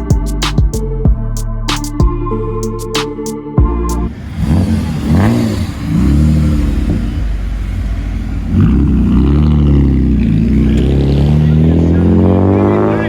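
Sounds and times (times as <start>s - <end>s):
car engine revving: 3.9s - 13.0s.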